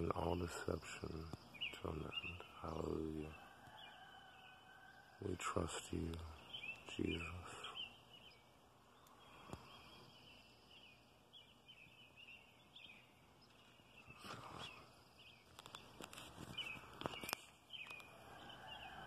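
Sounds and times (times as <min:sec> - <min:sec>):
faint bird chirps: 0:00.0 - 0:19.0
rustling handling noise: 0:15.5 - 0:17.6.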